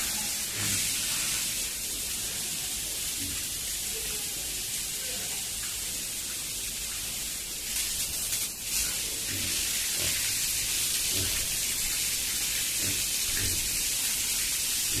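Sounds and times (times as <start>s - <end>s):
steady hiss: 0.0s - 15.0s
pigs grunting: 9.0s - 10.4s, 11.0s - 11.8s, 12.7s - 13.9s.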